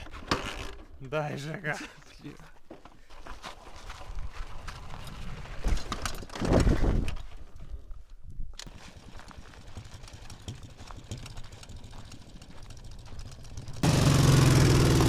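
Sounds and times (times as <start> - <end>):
motorcycle engine running roughly: 8.7 - 15.0.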